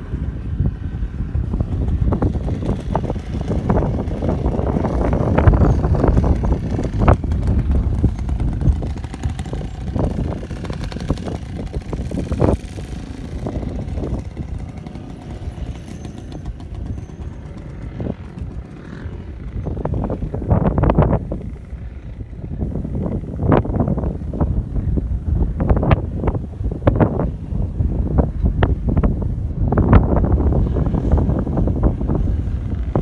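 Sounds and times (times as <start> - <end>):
dirt bike engine revving: 0.0 - 24.1.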